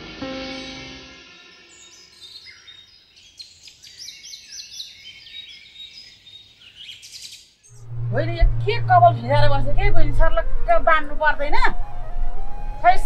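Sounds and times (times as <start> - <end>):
small birds chirping: 1.6 - 7.9.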